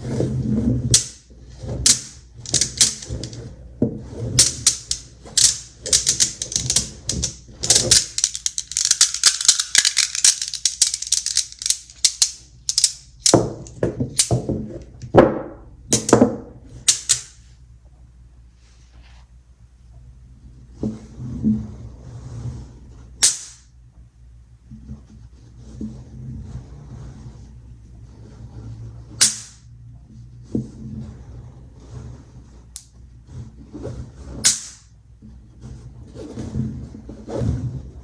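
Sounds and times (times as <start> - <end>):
magnet balls clicking together: 0.9 - 1.2, 1.8 - 3.4, 4.4 - 14.4, 15.9 - 16.2, 16.9 - 17.4, 23.2 - 23.6, 29.2 - 29.6, 34.5 - 34.9.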